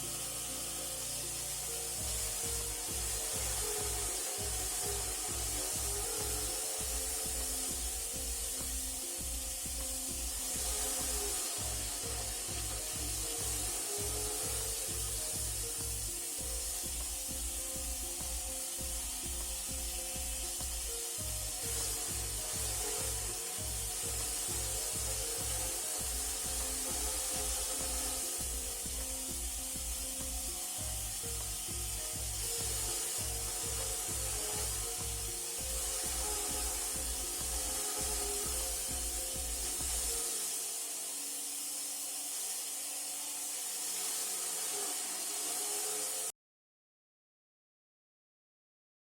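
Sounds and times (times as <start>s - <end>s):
background music with steady beat: 0.0s - 46.3s
olive crusher motor grinding: 0.0s - 46.3s
steady hiss: 0.0s - 46.3s.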